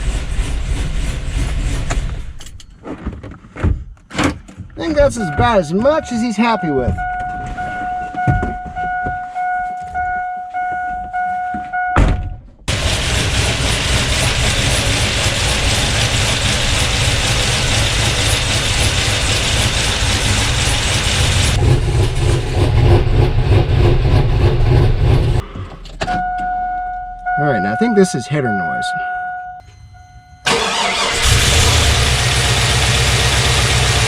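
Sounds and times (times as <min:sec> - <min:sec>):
electronic chime tone: 0:05.2 - 0:12.0, 0:26.2 - 0:30.5
car engine running: 0:12.7 - 0:25.4, 0:30.5 - 0:34.0.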